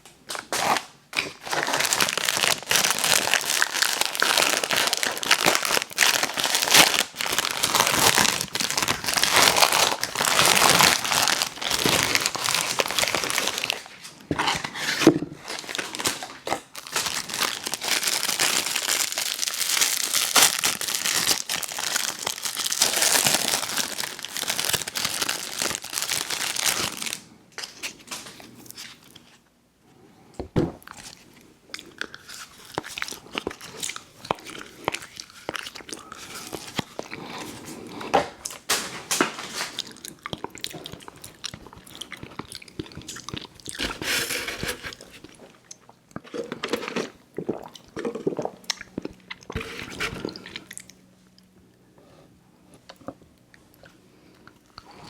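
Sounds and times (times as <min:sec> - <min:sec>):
candy wrapper crinkling: 0:00.3 - 0:29.3, 0:31.9 - 0:37.6.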